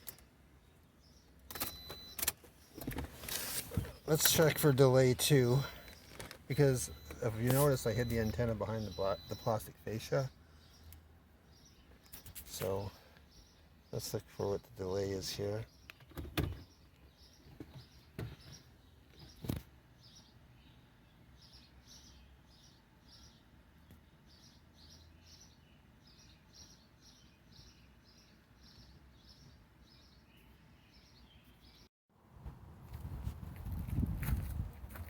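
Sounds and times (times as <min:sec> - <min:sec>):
faint bird chirps: 0:05.3 - 0:14.6.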